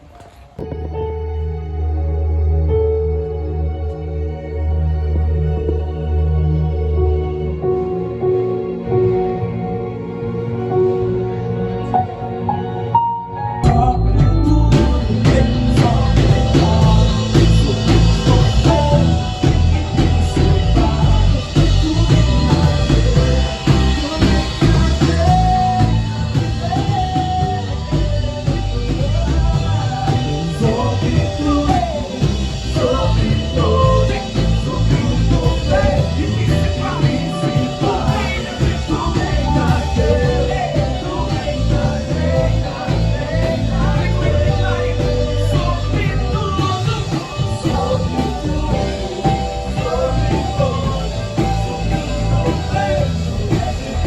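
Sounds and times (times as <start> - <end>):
guitar: 0.0 - 54.0
person singing lead vocals: 4.7 - 54.0
drum kit: 13.6 - 54.0
heavy bass: 13.6 - 54.0.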